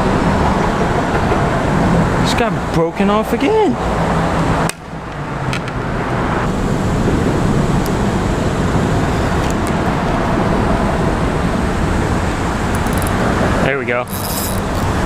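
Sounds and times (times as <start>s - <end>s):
dense traffic passing: 0.0s - 15.0s.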